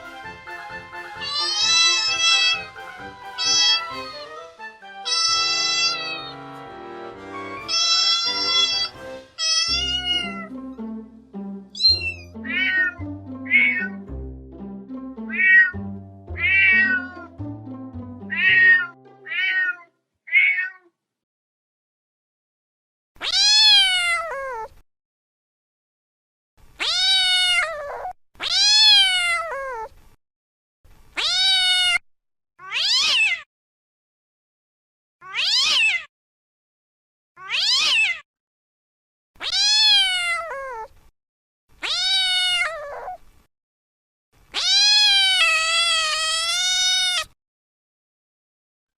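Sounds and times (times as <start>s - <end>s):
background music: 0.0s - 19.6s
cats meowing: 1.2s - 2.7s, 3.4s - 3.9s, 5.0s - 6.3s, 7.7s - 10.5s, 11.8s - 14.0s, 15.3s - 17.4s, 18.3s - 20.9s, 23.2s - 24.8s, 26.8s - 29.9s, 31.2s - 32.0s, 32.6s - 33.5s, 35.2s - 36.1s, 37.4s - 38.2s, 39.4s - 40.9s, 41.8s - 43.2s, 44.5s - 47.4s.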